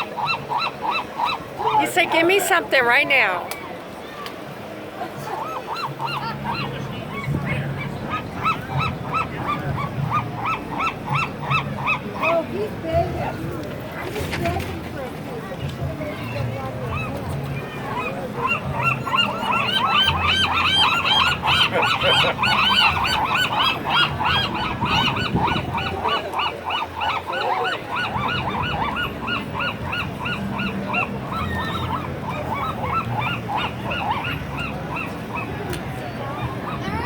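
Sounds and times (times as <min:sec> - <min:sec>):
gulls squawking: 0:00.0 - 0:03.4, 0:05.2 - 0:13.4, 0:16.2 - 0:37.0.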